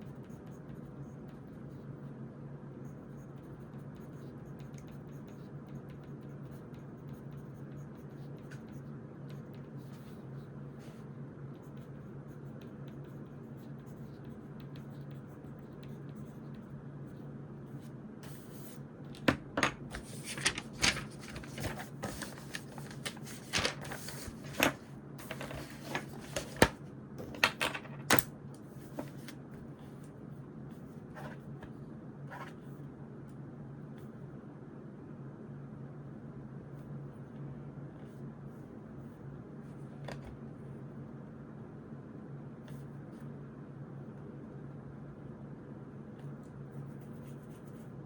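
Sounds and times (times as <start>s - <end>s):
low room hum: 0.0s - 48.0s
paper rustling: 18.6s - 28.3s.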